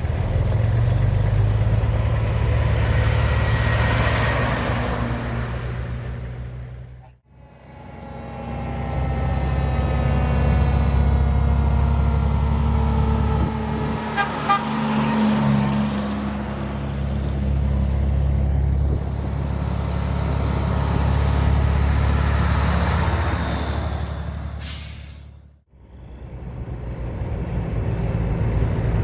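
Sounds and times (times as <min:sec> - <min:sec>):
short burst of hiss: 0:24.6 - 0:25.3.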